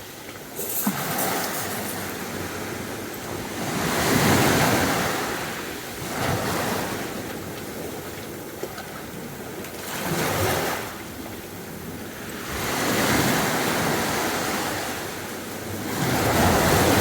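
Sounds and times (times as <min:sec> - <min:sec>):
sea waves breaking on beach: 0:00.0 - 0:17.0.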